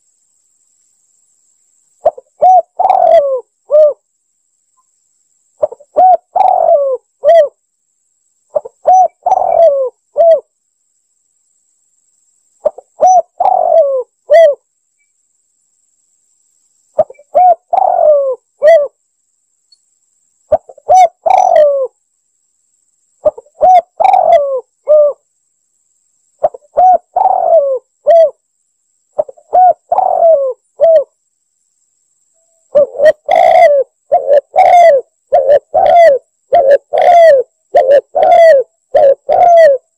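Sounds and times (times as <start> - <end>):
dove cooing: 2.0 - 4.0, 5.6 - 7.6, 8.5 - 10.5, 12.6 - 14.6, 17.0 - 19.0, 20.5 - 21.9, 23.2 - 25.2, 26.4 - 28.4, 29.2 - 31.1, 32.7 - 39.9.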